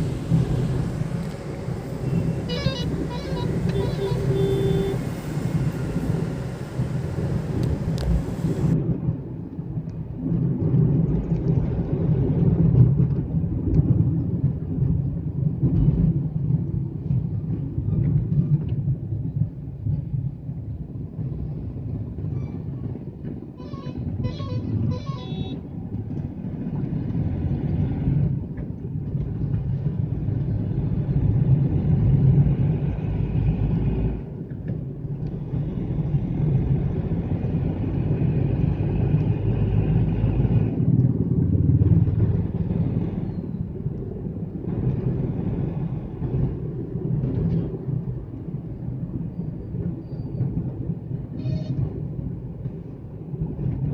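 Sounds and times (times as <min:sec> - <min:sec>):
car engine and road rumble: 0:00.0 - 0:53.9
car horn short toots: 0:02.0 - 0:05.2.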